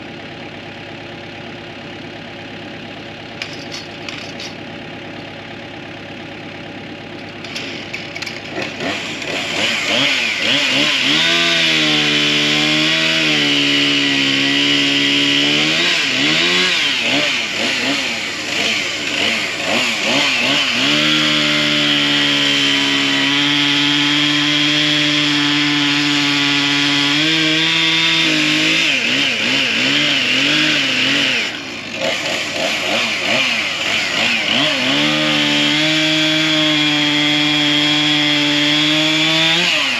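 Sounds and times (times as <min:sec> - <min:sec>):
chainsaw cutting wood: 0:03.4 - 0:04.7, 0:07.2 - 0:39.9.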